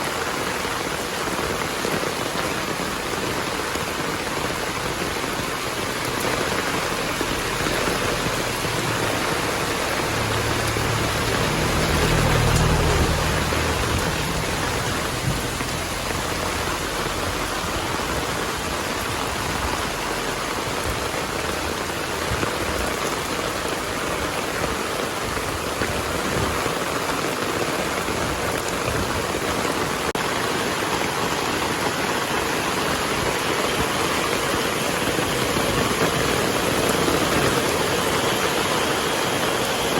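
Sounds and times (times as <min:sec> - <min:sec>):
heavy rain falling: 0:00.0 - 0:39.9
low rumble: 0:08.1 - 0:18.3.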